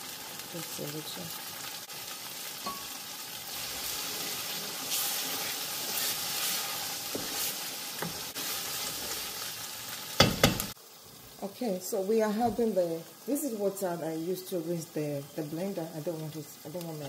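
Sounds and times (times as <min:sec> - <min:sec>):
food sizzling in a pot: 0:00.0 - 0:17.0
wooden spatula scraping a pot: 0:03.6 - 0:09.3.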